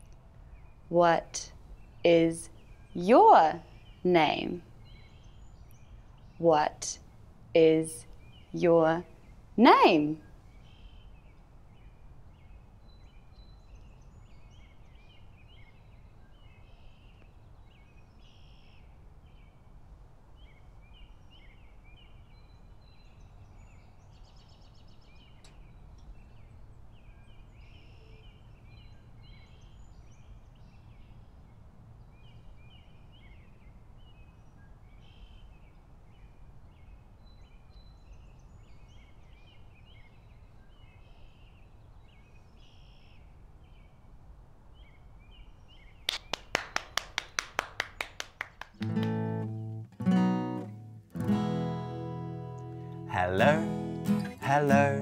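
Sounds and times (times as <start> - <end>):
faint birds chirping: 0.0 - 55.0.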